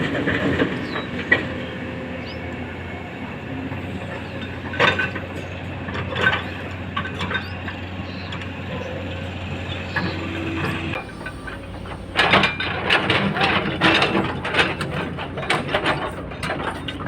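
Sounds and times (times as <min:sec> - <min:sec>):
excavator diesel engine running: 0:00.0 - 0:17.0
rocks clanking on metal: 0:11.0 - 0:17.0.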